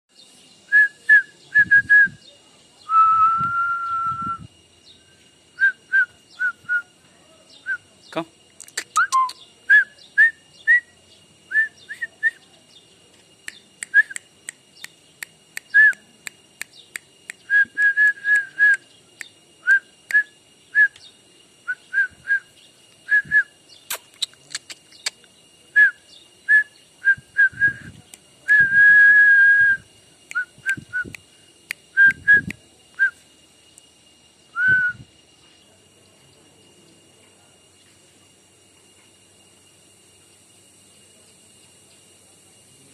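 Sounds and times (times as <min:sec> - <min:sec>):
sharp clicks: 0:08.6 - 0:09.4, 0:23.9 - 0:25.3.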